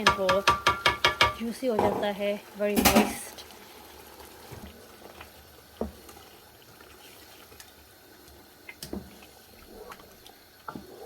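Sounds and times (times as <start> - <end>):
food squelching in a pot: 2.4 - 11.0.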